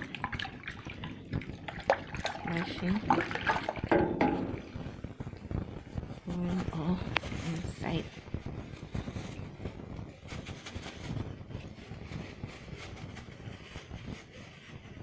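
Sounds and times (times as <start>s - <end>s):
water sloshing in a container: 0.0s - 5.5s
small knocks: 3.9s - 4.7s.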